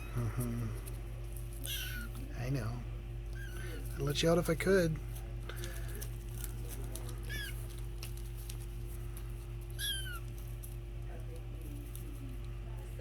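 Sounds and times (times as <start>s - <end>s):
kitten mewing: 1.6s - 2.3s, 3.3s - 4.0s, 7.2s - 7.6s, 9.7s - 10.3s.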